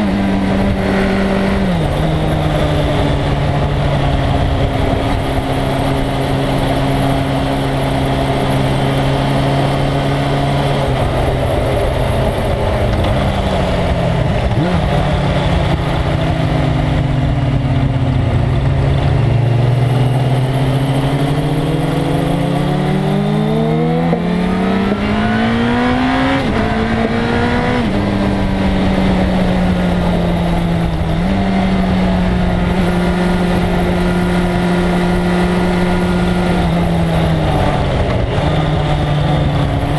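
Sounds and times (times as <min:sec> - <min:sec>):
heavy wind rush: 0:00.0 - 0:39.9
motorcycle engine at speed: 0:00.0 - 0:39.9.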